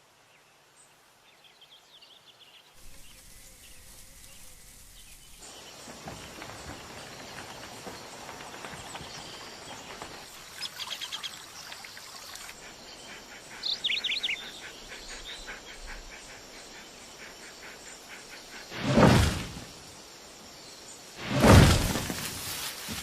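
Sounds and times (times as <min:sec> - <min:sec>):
birds chirping: 0:01.3 - 0:19.1
insects droning: 0:02.7 - 0:23.0.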